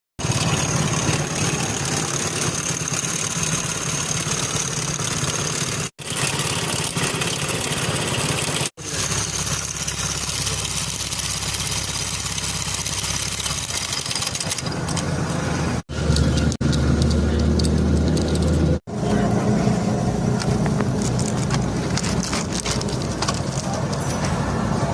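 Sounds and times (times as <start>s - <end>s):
motorcycle engine idling: 0.2s - 15.1s
timing chain rattle: 0.2s - 15.1s.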